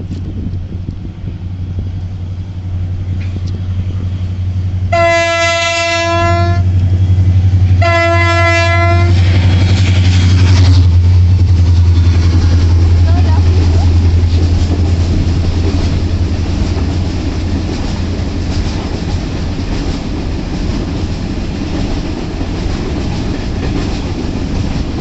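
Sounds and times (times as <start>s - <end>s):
freight train rumbling: 0.0s - 25.0s
train horn blasts: 4.9s - 6.8s, 7.7s - 9.4s.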